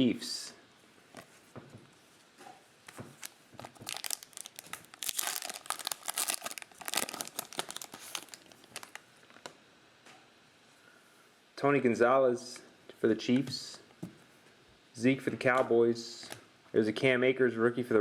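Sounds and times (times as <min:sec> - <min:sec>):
foil wrapper tearing and crinkling: 0:03.2 - 0:09.0.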